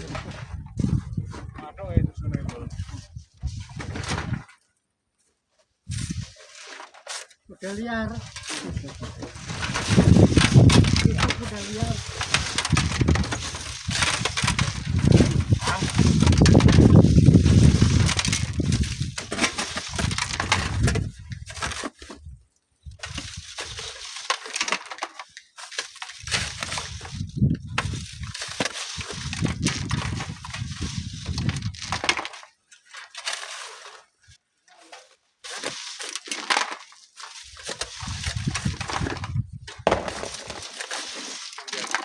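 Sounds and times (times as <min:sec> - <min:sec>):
strong wind on microphone: 0:00.0 - 0:04.4, 0:09.3 - 0:19.2, 0:29.1 - 0:31.9, 0:38.0 - 0:39.7
sand and stones crunching: 0:00.0 - 0:42.0.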